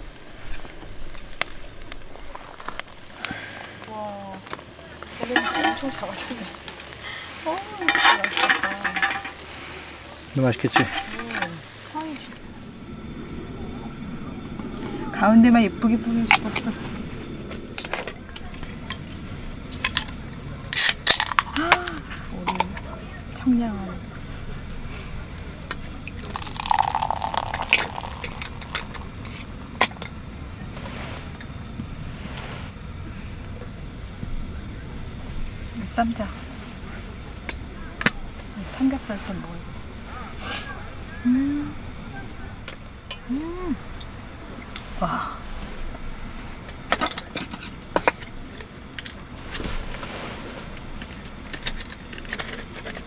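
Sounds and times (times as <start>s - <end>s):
low steady background noise: 0.0s - 53.0s
tableware clinking: 5.2s - 6.4s, 7.8s - 9.5s, 10.6s - 11.6s, 26.2s - 29.1s
drink pouring into cup: 26.0s - 29.5s.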